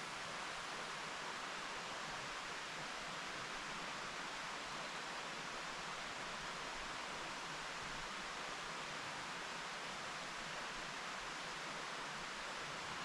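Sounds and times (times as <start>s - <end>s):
mountain stream flowing: 0.0s - 13.0s.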